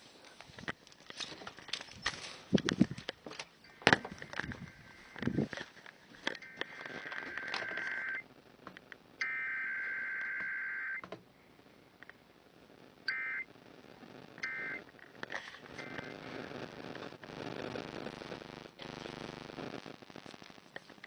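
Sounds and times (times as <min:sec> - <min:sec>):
buzzy digital data bursts on radio: 0:06.2 - 0:21.0.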